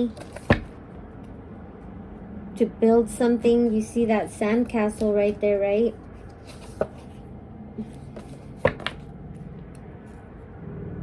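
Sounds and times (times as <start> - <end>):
cards clicking on a table: 7.8 - 9.0.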